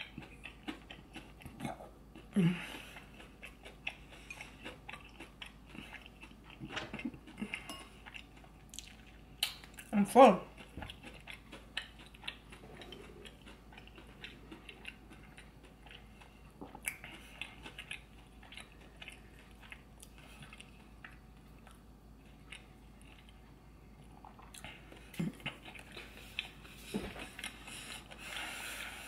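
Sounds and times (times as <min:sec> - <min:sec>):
faint chewing: 0:00.0 - 0:29.0.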